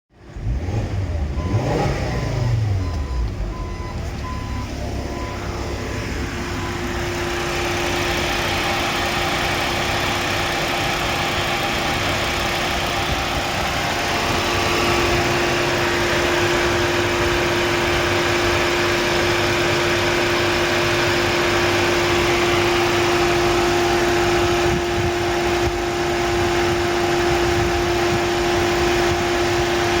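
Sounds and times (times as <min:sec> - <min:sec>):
engine revving and running: 0:00.2 - 0:30.0
constant whining tone: 0:02.2 - 0:30.0.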